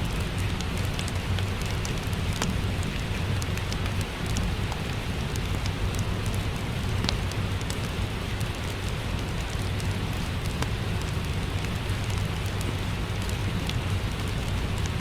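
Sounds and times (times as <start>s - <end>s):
steady rain: 0.0s - 15.0s
wood fire crackling: 0.0s - 15.0s.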